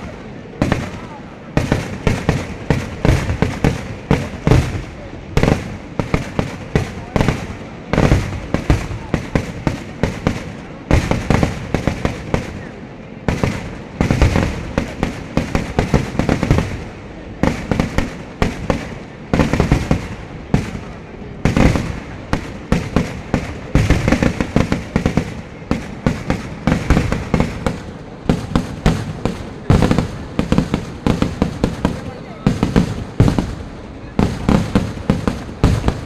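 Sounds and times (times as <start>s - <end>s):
fireworks and firecrackers banging: 0.0s - 36.0s.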